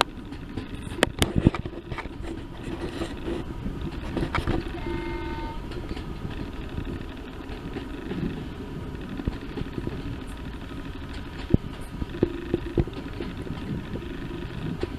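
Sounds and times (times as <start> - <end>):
train rumbling: 0.0 - 14.9
train horn toot: 4.6 - 5.8.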